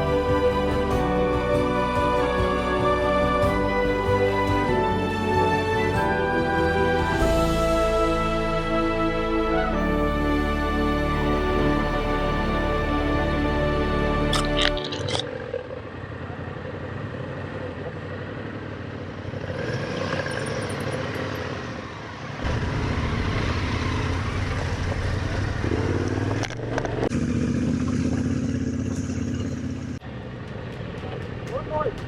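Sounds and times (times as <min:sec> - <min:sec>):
motorcycle engine running: 0:22.4 - 0:32.0.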